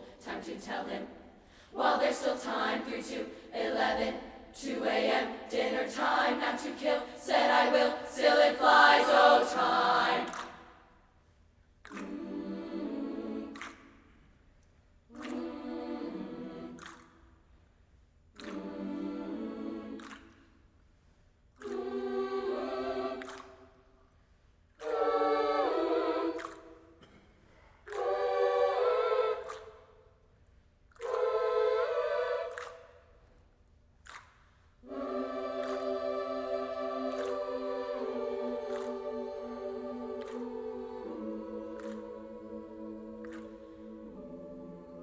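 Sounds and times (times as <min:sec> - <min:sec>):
voices singing held chords: 0:00.0 - 0:10.6, 0:12.0 - 0:13.8, 0:15.2 - 0:17.0, 0:18.4 - 0:20.2, 0:21.6 - 0:23.6, 0:24.8 - 0:26.8, 0:27.9 - 0:29.8, 0:31.0 - 0:32.9, 0:34.8 - 0:45.0.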